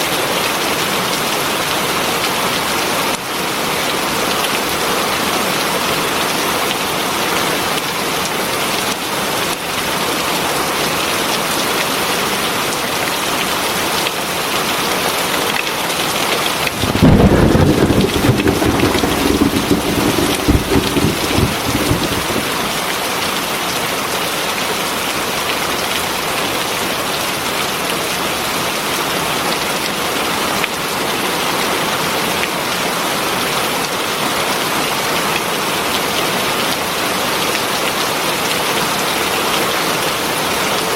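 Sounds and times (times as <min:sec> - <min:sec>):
heavy rain falling: 0:16.5 - 0:23.3
low rumble of thunder: 0:16.6 - 0:22.9.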